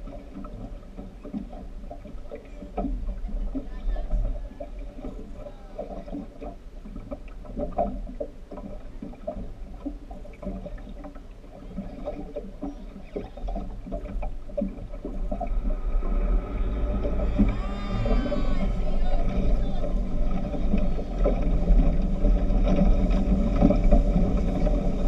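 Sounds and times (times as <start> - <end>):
speedboat engine rumble: 0.0 - 25.0
faint voices: 2.5 - 6.4, 11.6 - 13.9, 16.6 - 22.0.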